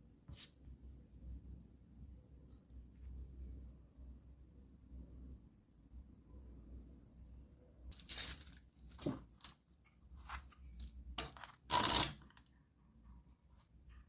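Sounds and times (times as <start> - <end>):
small hard objects clinking: 8.0 - 9.1.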